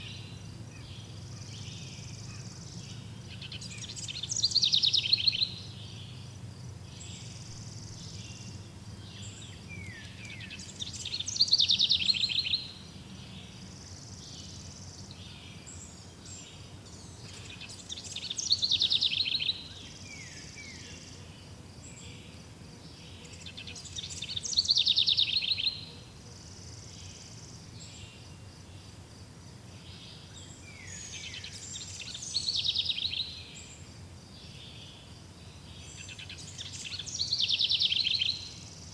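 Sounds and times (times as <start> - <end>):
songbird trilling: 0.0 - 6.2, 6.9 - 13.5, 17.2 - 20.4, 23.4 - 25.9, 30.7 - 33.5, 35.9 - 38.6
faint background hiss: 0.0 - 38.9.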